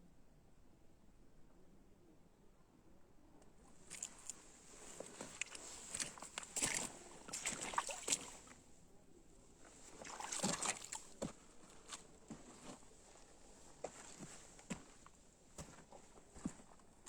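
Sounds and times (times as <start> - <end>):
water sloshing and splashing: 3.8 - 8.7, 9.7 - 12.0.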